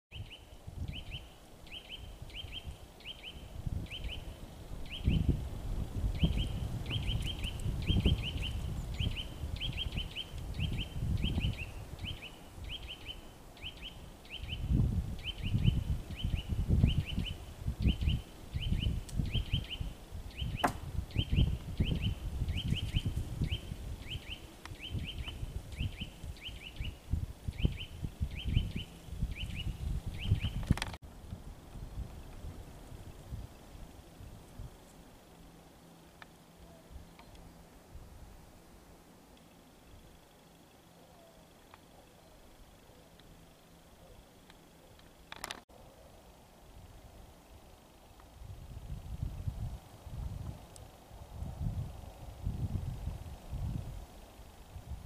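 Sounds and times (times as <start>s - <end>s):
songbird high chirps: 0.1s - 5.4s, 6.0s - 30.9s
wind rumble on microphone: 0.1s - 35.1s, 36.6s - 38.6s, 46.7s - 55.0s.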